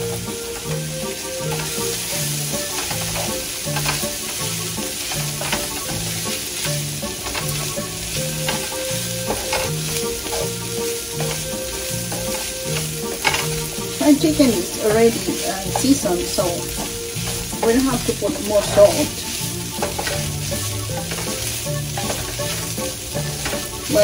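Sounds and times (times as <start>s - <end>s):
food sizzling in oil: 0.0s - 24.0s
wooden spatula scraping pan: 0.0s - 24.0s.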